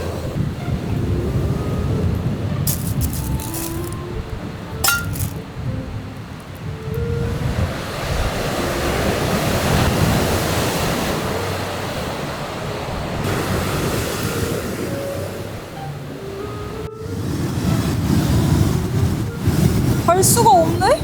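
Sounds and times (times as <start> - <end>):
wind: 0.0 - 21.0
sea waves breaking on shore: 6.3 - 21.0.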